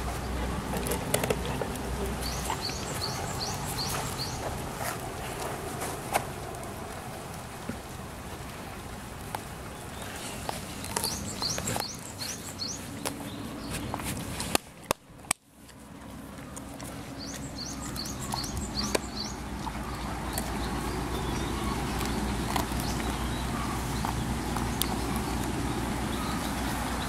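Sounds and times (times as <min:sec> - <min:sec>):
outdoor noise: 0:00.0 - 0:27.0
small bird chirping: 0:02.2 - 0:04.4, 0:10.8 - 0:13.9, 0:17.2 - 0:27.0.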